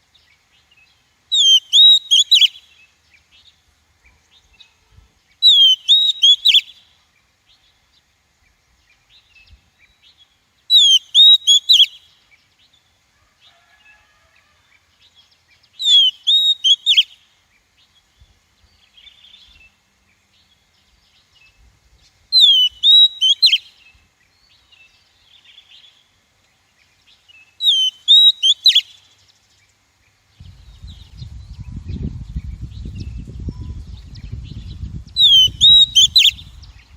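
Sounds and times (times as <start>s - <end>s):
bird singing whistled notes: 0.6s - 3.6s, 5.4s - 7.6s, 8.9s - 12.2s, 15.7s - 17.3s, 22.3s - 26.1s, 27.3s - 29.1s, 30.4s - 36.9s.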